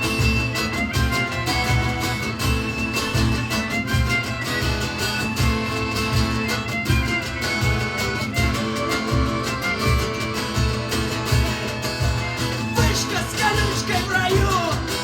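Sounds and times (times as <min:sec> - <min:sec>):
live band instrumental: 0:00.0 - 0:15.0.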